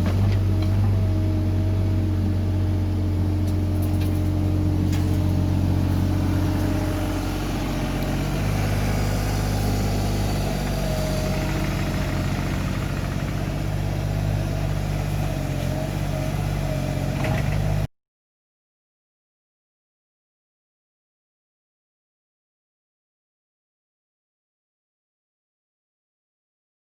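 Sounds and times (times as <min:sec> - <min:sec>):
engine idling: 0:00.0 - 0:17.9.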